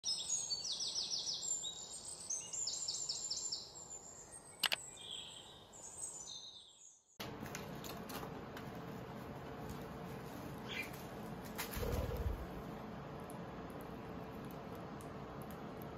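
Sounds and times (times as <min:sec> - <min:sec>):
songbirds chirping: 0:00.0 - 0:07.2, 0:09.9 - 0:15.9
birds tapping on camera: 0:04.6 - 0:04.8.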